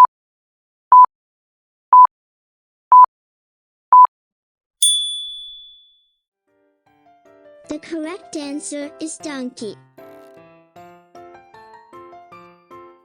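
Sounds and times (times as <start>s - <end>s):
bell-like ding: 4.8s - 6.0s.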